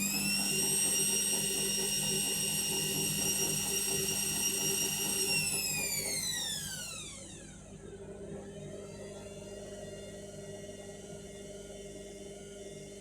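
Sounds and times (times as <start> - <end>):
washing machine motor whining: 0.0 - 7.8.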